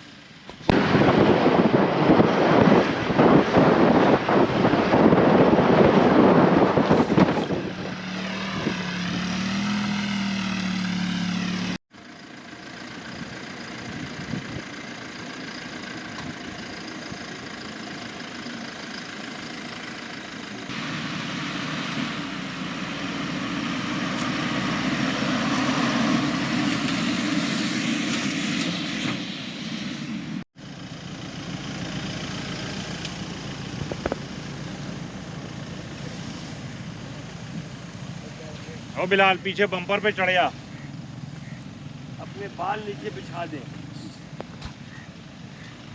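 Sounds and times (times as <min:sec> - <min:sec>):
off-road vehicle engine running: 0:00.0 - 0:45.9.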